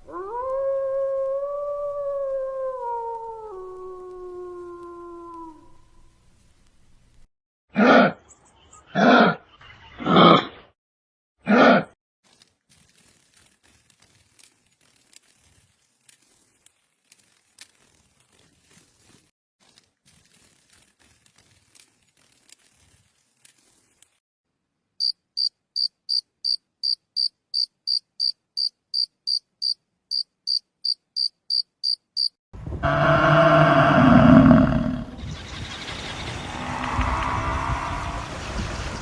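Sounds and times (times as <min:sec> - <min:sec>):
faint crackly hiss: 0:00.0 - 0:07.3, 0:12.7 - 0:24.2
cricket chirping: 0:25.0 - 0:32.3.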